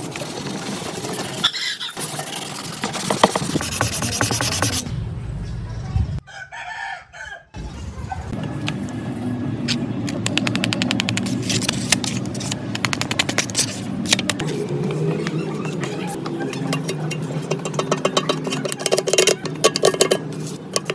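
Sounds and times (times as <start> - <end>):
machine running with rapid clicking: 2.0 - 4.8
rooster crowing: 6.2 - 7.6.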